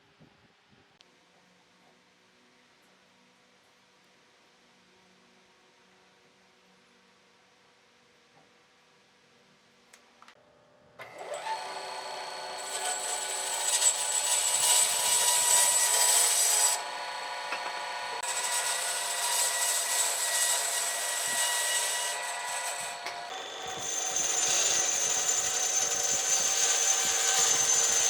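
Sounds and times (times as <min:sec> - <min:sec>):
power tool motor whine: 0:11.0 - 0:28.0.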